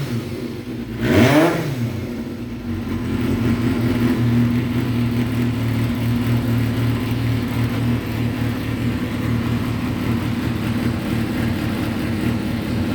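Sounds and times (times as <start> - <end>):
motorcycle engine running: 0.0 - 12.9.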